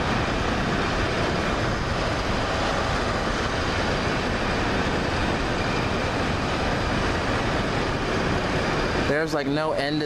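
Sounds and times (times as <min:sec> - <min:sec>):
train wheels rolling on rail: 0:00.0 - 0:10.0.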